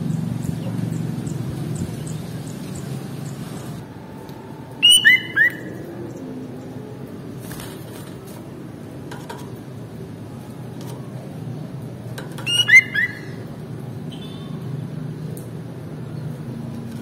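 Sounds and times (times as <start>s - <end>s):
bird call notes: 4.8s - 5.8s, 12.4s - 13.4s.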